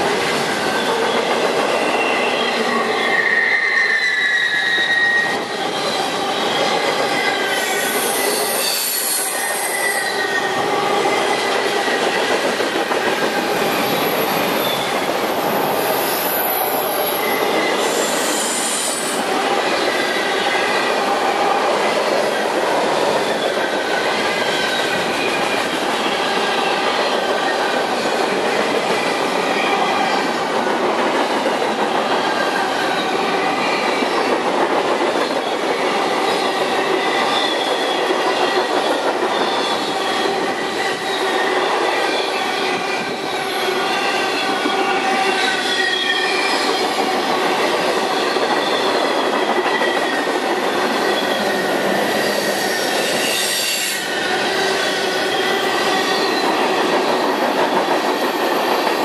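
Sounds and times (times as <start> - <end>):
high-pitched wheel squeal: 1.8 - 10.6, 16.0 - 19.2
steel wheels rumbling on rails: 4.5 - 59.0.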